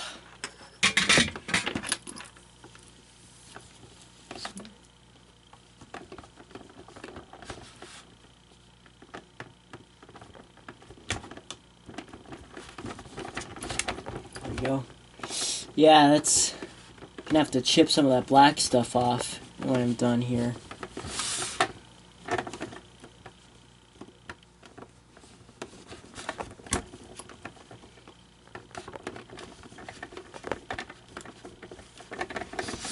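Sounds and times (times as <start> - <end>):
plastic parts clicking and scraping: 5.8 - 15.4, 18.8 - 23.4, 24.0 - 32.9.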